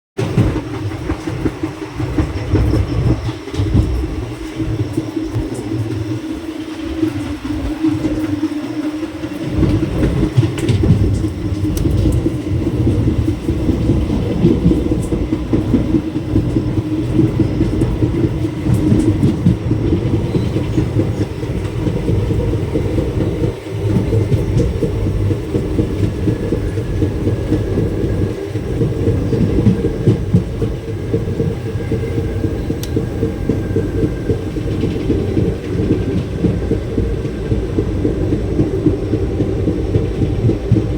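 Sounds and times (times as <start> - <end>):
train rumbling on rails: 0.1 - 40.9.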